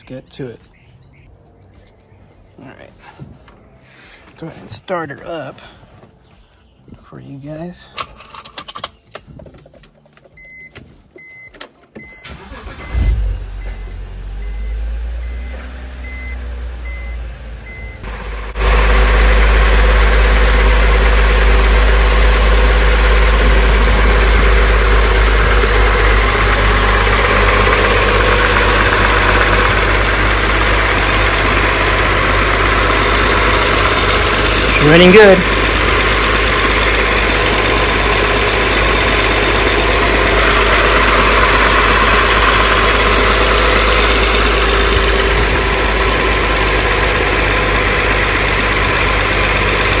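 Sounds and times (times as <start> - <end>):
engine starting and idling: 11.5 - 50.0.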